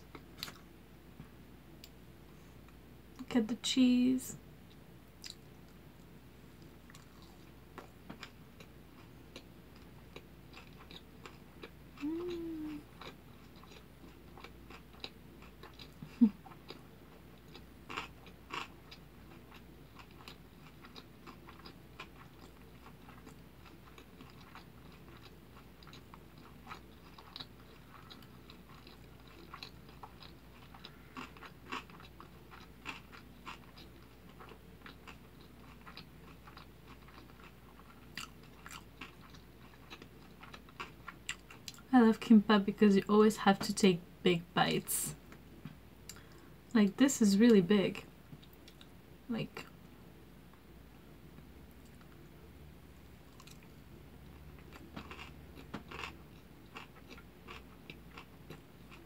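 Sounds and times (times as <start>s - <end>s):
wet chewing mouth clicks: 46.1s - 46.4s.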